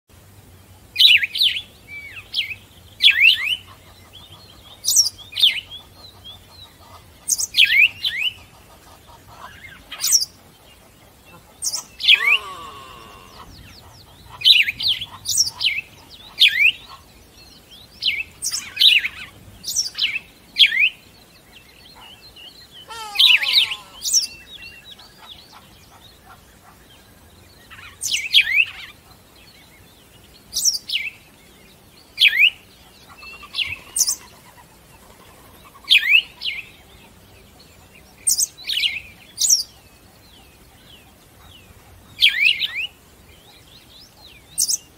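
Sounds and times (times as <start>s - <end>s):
birds chirping: 0.6s - 44.9s
bird call sweeping downward: 12.0s - 13.5s, 22.8s - 24.4s.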